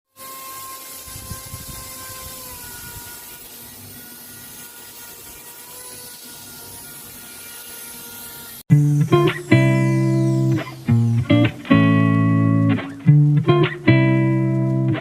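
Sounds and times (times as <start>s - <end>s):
small motor spinning propeller: 0.1s - 11.3s.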